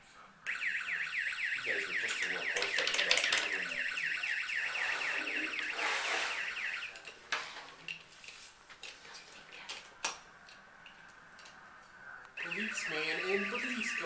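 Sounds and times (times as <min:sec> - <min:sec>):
toy police siren yelping: 0:00.5 - 0:07.0, 0:12.4 - 0:14.0
plastic toys clicking: 0:02.5 - 0:03.7.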